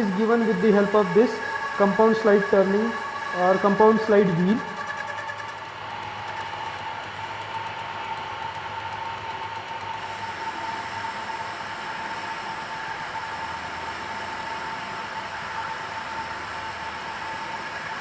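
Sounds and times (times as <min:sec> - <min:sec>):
lathe whining: 0:00.0 - 0:18.0.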